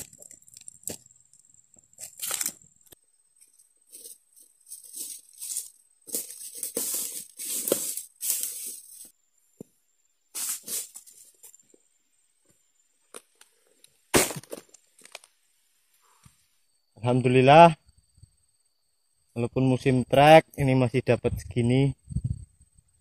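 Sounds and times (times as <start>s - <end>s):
palm fronds rustling and tearing: 2.0s - 2.6s, 4.0s - 9.1s.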